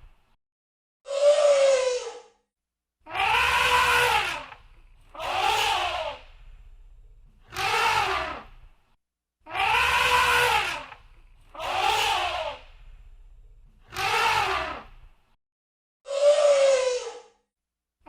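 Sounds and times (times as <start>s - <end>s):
elephant trumpeting: 3.1s - 6.5s, 7.5s - 8.5s, 9.5s - 12.9s, 13.9s - 14.9s.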